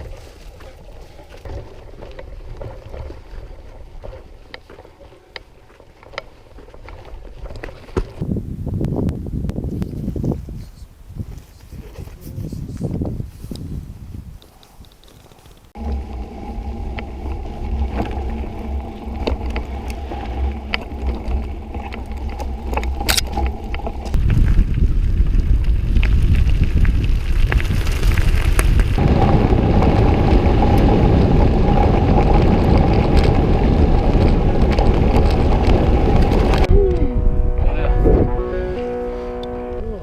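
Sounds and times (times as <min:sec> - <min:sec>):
moving vehicle rumble and hum: 0:15.6 - 0:40.0.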